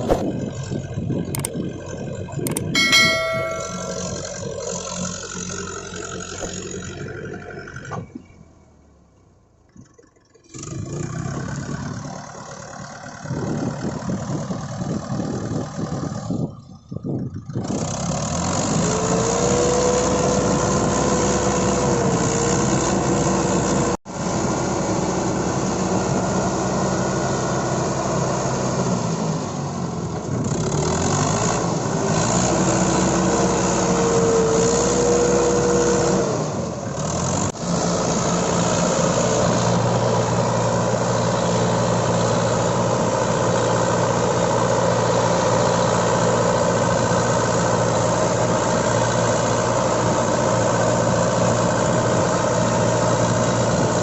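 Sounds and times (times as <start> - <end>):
tractor diesel engine revving: 17.6 - 54.0.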